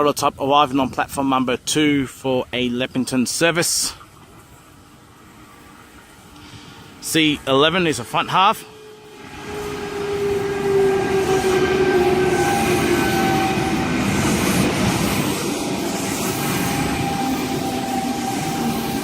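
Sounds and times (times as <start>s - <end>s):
train wheels rumbling on rails: 0.6s - 19.0s
electric train whine: 2.7s - 19.0s.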